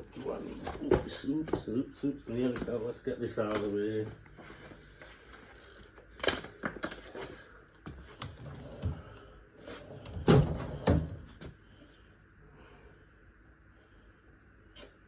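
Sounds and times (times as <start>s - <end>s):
tools and metal parts clattering: 5.3s - 7.4s.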